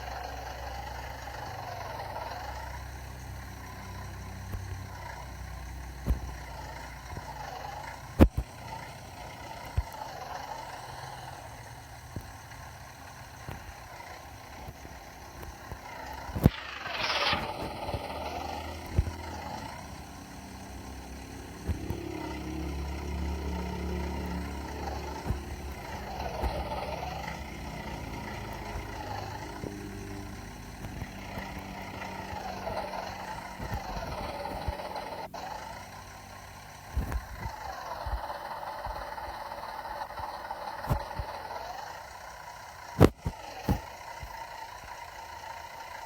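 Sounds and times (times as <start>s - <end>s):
cartoon vehicle engines running: 0.0s - 46.0s
falling and rising pitch sweeps: 15.7s - 35.4s.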